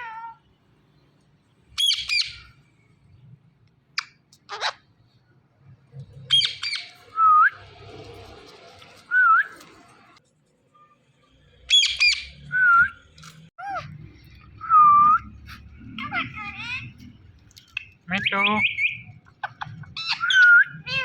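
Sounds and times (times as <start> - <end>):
parrot squawking: 4.0 - 4.9, 18.3 - 21.0.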